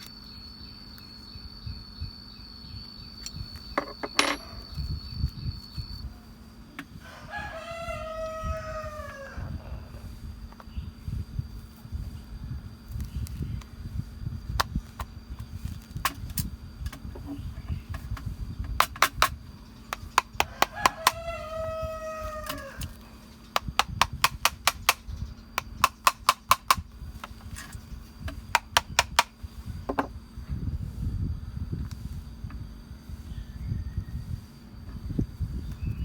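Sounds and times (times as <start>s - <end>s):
rooster crowing: 7.0s - 10.0s, 20.4s - 23.1s.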